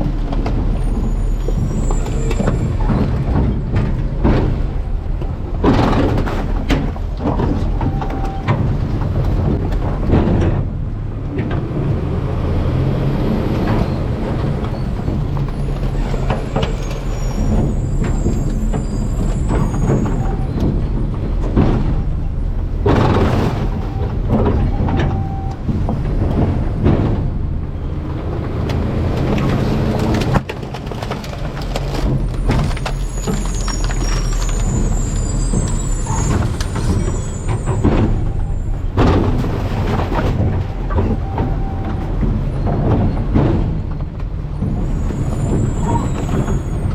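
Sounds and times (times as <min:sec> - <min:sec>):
garbage truck hydraulics running: 0:00.0 - 0:46.9
trash being crushed: 0:14.4 - 0:46.7.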